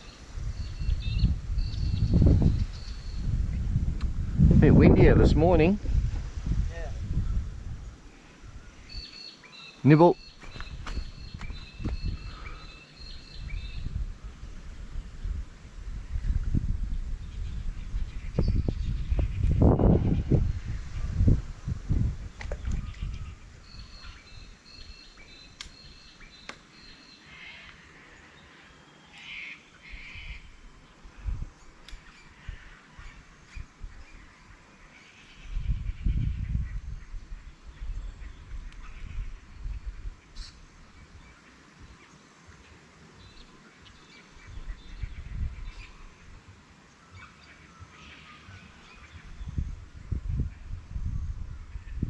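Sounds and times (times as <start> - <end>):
high whistled bird calls: 0.0 - 3.4, 8.7 - 14.0, 22.5 - 27.8
birds chirping and calling: 0.0 - 3.6, 7.2 - 14.0, 17.1 - 21.2, 22.3 - 50.8
low wind rumble: 0.0 - 42.1, 43.2 - 52.0
sharp clicks: 25.6 - 25.8
harsh raspy bird calls: 29.1 - 30.6.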